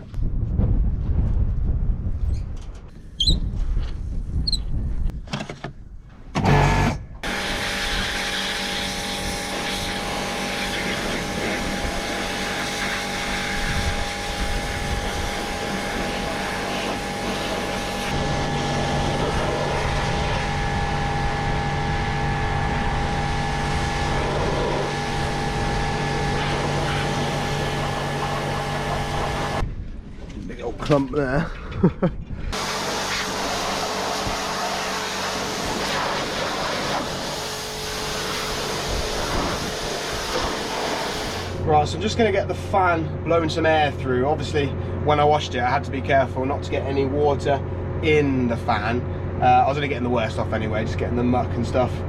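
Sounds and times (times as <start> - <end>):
pressure washer running: 6.4 - 29.6, 32.6 - 41.9
spray hissing: 7.3 - 18.2, 32.6 - 41.6.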